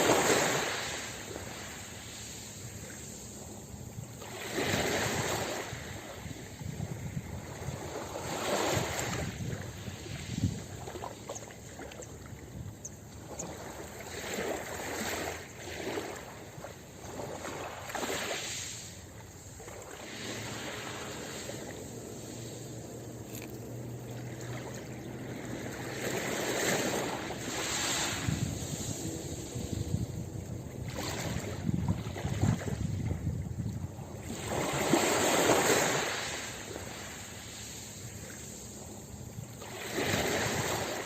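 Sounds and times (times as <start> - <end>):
ocean surf washing onto beach: 0.0 - 3.6, 17.4 - 38.8.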